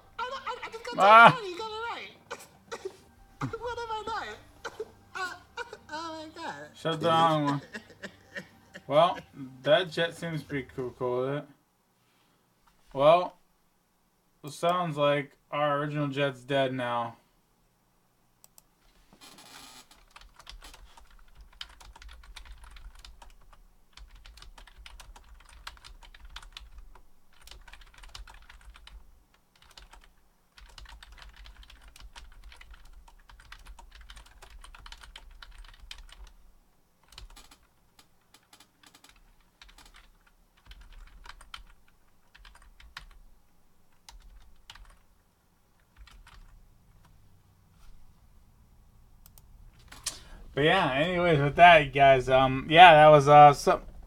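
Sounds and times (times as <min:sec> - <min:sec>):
low steady hum: 0:00.0 - 0:19.2, 0:20.0 - 0:54.0
keyboard typing: 0:19.8 - 0:36.4, 0:37.0 - 0:43.2, 0:43.9 - 0:45.1, 0:45.8 - 0:47.2.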